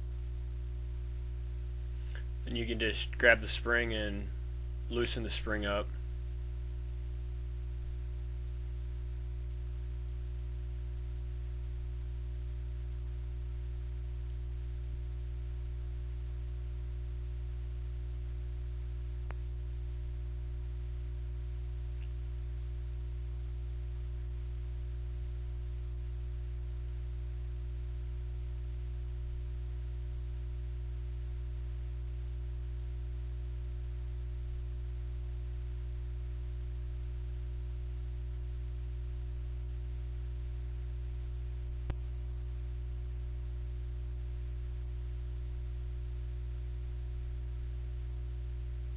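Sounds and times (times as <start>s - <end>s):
low electrical hum: 0.0s - 48.9s
faint click: 19.2s - 19.4s, 22.0s - 22.2s, 41.8s - 42.1s.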